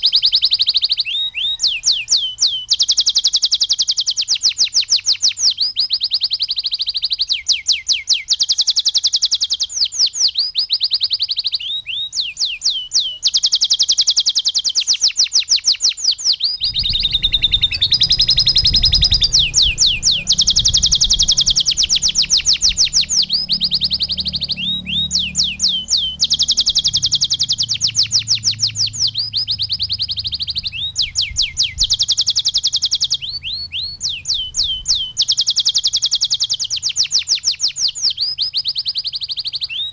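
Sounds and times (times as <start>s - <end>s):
canary singing trills: 0.0s - 39.9s
low hum: 16.6s - 32.0s.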